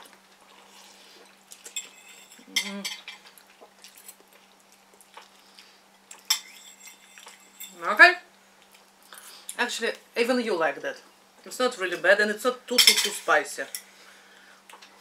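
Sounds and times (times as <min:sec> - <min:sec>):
cutlery clinking against a bowl: 0:01.7 - 0:03.3, 0:06.2 - 0:07.8, 0:12.8 - 0:13.9.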